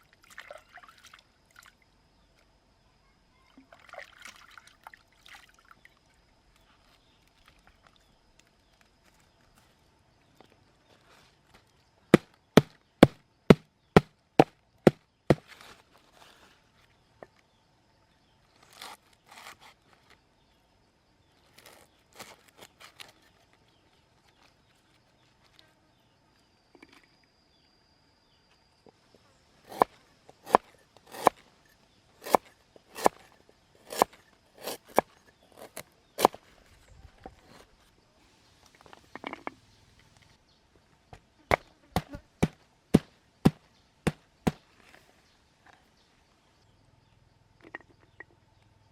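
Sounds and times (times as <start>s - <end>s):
knife chopping on wooden board: 29.7s - 31.4s, 32.2s - 36.4s, 41.5s - 44.6s.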